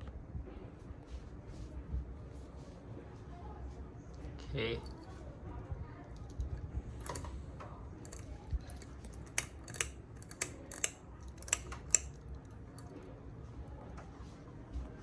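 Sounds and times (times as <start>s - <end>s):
sharp irregular clicks: 8.0s - 12.9s.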